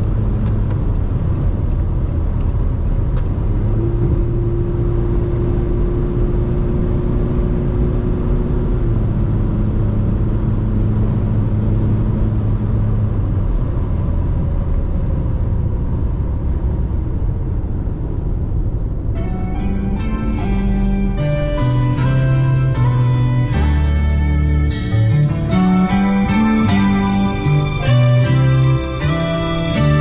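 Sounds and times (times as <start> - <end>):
diesel engine drone: 0.0 - 30.0
road rumble: 0.0 - 30.0
music: 19.2 - 30.0.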